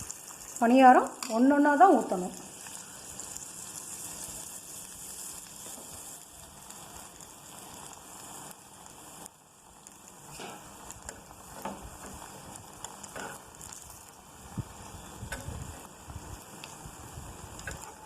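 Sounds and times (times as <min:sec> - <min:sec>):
batter sizzling in hot oil: 0:00.0 - 0:18.0.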